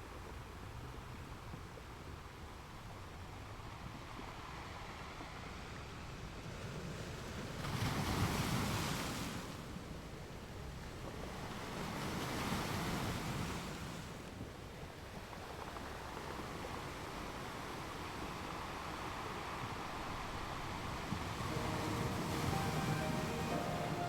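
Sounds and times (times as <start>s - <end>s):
ocean waves washing in: 20.8s - 24.0s.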